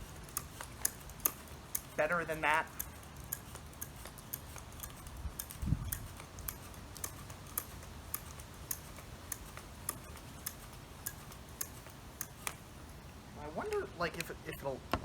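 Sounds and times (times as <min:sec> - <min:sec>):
light clicking: 0:00.0 - 0:14.7.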